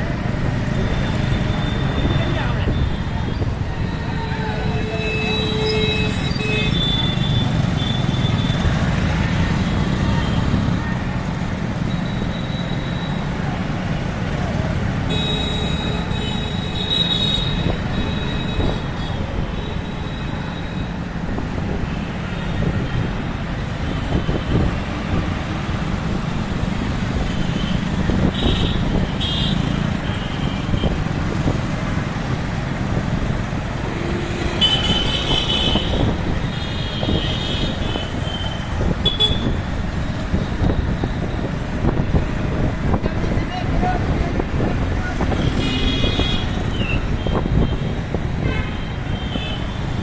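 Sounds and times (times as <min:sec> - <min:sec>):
street traffic rumble: 0:00.0 - 0:50.0
vehicle horns honking: 0:03.8 - 0:08.6, 0:15.0 - 0:19.1, 0:27.3 - 0:31.0, 0:33.9 - 0:39.7, 0:45.3 - 0:50.0.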